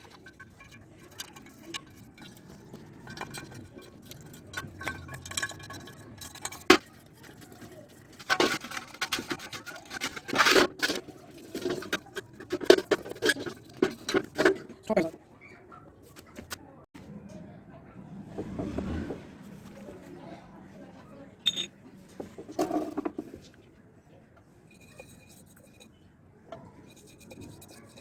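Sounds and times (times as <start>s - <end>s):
metallic clinks and taps: 21.5s - 21.7s.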